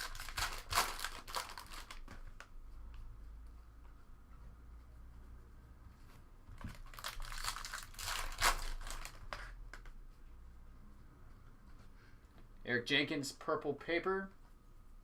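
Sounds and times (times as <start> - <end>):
foil wrapper tearing and crinkling: 0.0 - 2.0, 6.7 - 9.5.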